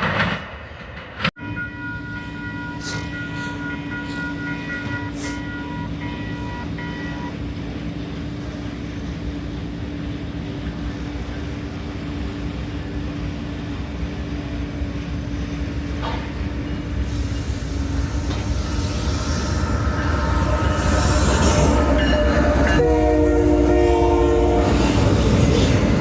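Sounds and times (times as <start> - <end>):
train engine hum: 0.0 - 26.0
train wheels on rails: 0.0 - 26.0
pulsing ringing tone: 18.0 - 23.5.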